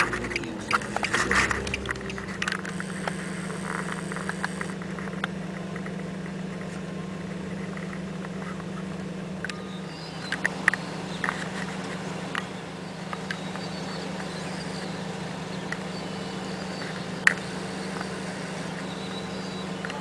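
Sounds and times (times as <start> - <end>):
sharp clicks: 0.0 - 6.7, 9.4 - 14.9
vehicle engine idling: 0.0 - 20.0.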